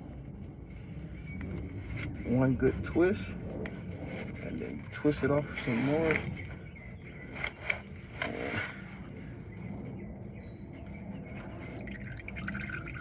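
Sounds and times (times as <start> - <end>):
oil draining rush: 11.7 - 13.0.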